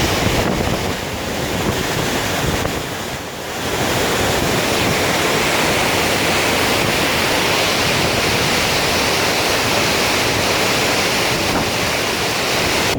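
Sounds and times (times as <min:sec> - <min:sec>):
rushing falling water: 0:00.0 - 0:12.9.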